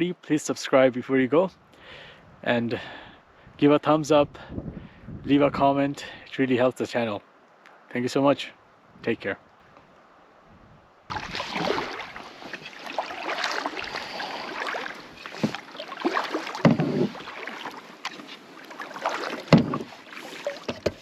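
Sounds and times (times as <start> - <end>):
paddle strokes splashing water: 11.1 - 21.0.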